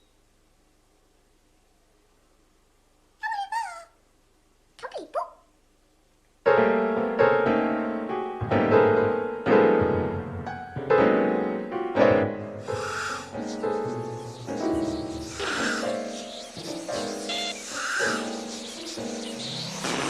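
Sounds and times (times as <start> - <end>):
sad piano music: 6.5 - 19.9.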